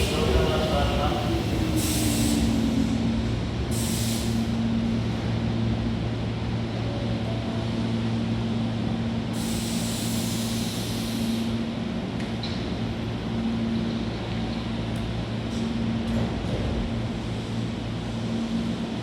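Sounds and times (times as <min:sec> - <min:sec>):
electric train humming: 0:00.0 - 0:19.0
compressed air hiss: 0:01.6 - 0:02.8, 0:03.7 - 0:04.6, 0:09.4 - 0:11.5.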